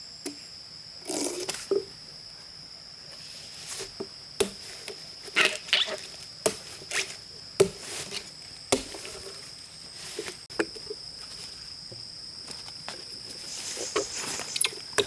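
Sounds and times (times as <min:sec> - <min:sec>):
high-pitched insect buzz: 0:05.2 - 0:07.3, 0:12.5 - 0:15.0.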